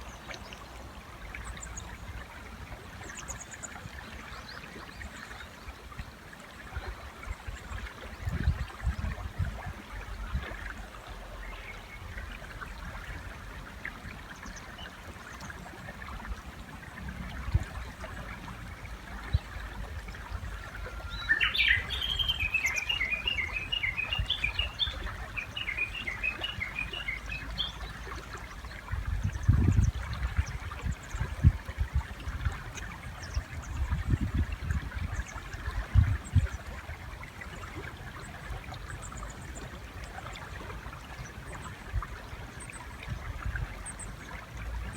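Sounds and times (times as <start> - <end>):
stream trickling: 0.0 - 44.9
bird singing: 20.7 - 28.0.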